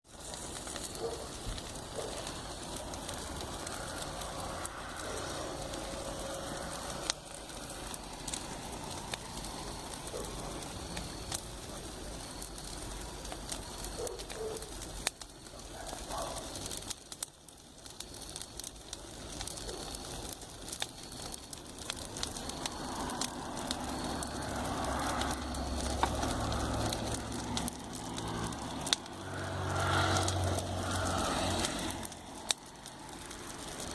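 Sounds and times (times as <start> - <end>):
campfire crackling: 0.1 - 33.9
vehicle on the road rumbling: 0.5 - 11.4, 21.6 - 33.9.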